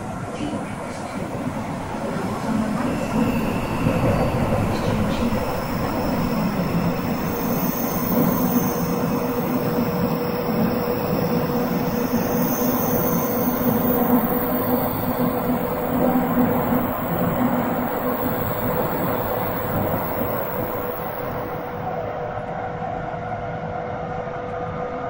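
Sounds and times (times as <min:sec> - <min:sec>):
train wheels rumbling on rail: 0:00.0 - 0:22.2
faint high squeal: 0:02.2 - 0:21.8.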